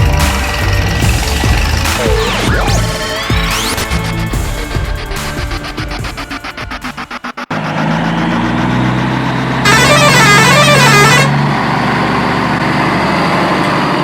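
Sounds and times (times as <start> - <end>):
truck engine running: 0.0 - 14.0
warbling truck horn: 9.3 - 11.6.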